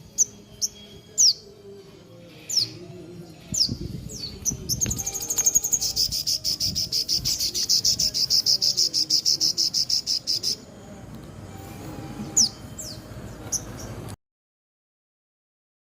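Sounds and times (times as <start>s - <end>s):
high falling bird chirps: 3.6s - 10.6s
bird buzzing trill: 4.6s - 10.6s.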